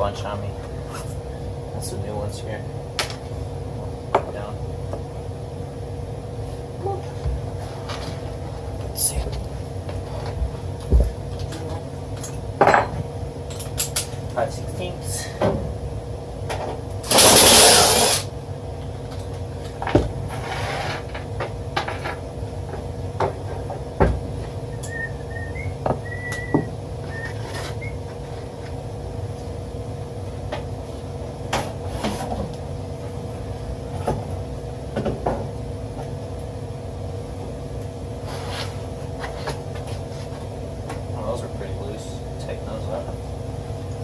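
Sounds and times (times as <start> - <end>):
steady background hum: 0.0 - 44.0
loud rasping noise: 17.1 - 18.3.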